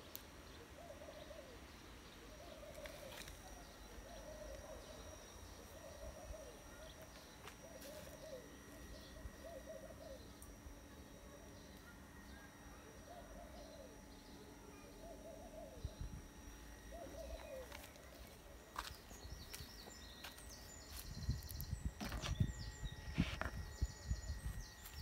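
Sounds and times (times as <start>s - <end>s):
birds cooing: 0.0s - 19.9s
microphone handling noise: 21.1s - 24.0s.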